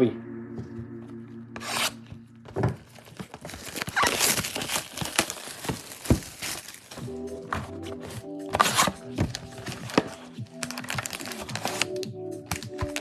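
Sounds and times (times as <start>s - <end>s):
plastic wrapping crinkling and tearing: 2.9s - 13.0s.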